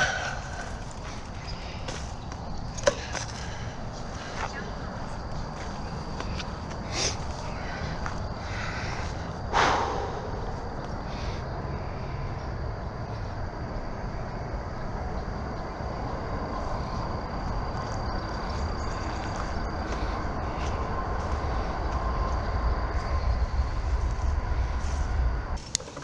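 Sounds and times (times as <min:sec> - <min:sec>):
bicycle tyres on wet trail: 0:00.0 - 0:09.3, 0:16.6 - 0:26.0
wind on microphone: 0:19.6 - 0:25.6.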